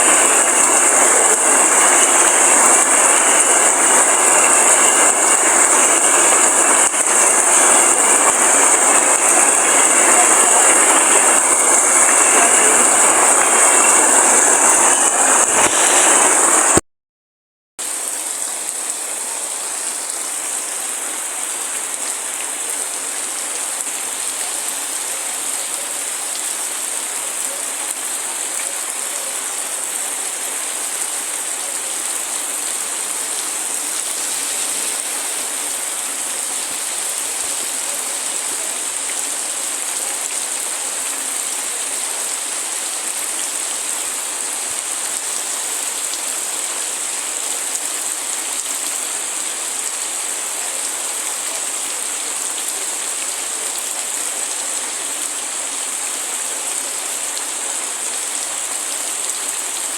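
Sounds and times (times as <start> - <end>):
loud rushing noise: 0.0 - 16.8
steady rain hiss: 0.0 - 16.8, 17.8 - 59.9.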